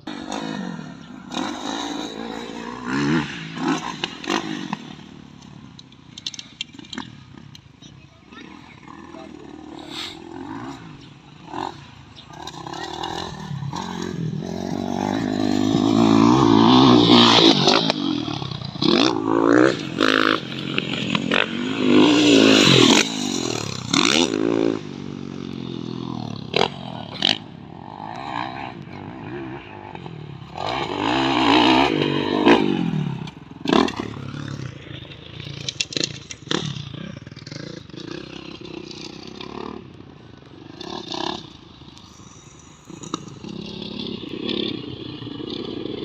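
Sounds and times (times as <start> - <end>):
dirt bike engines revving past: 0.0 - 46.0
sharp clicks and clatter: 3.7 - 8.0, 33.2 - 40.1.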